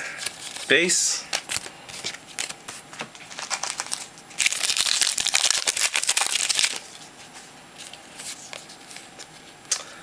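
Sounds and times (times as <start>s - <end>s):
packaging rustling and crinkling: 1.3s - 6.9s.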